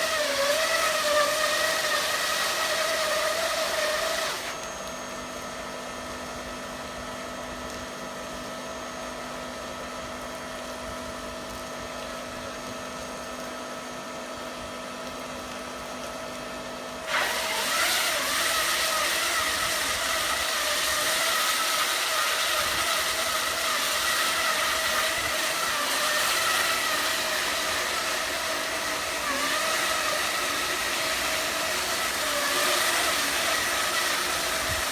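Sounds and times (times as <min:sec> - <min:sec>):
wire saw whining: 0:00.0 - 0:05.2, 0:17.0 - 0:34.9.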